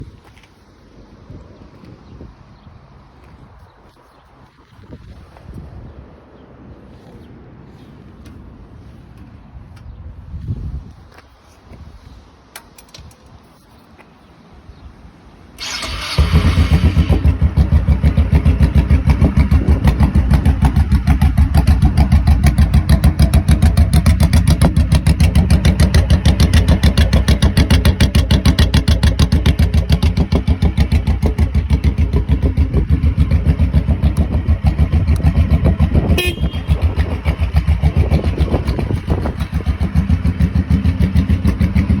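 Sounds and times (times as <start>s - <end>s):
motorcycle engine idling: 15.6s - 42.0s.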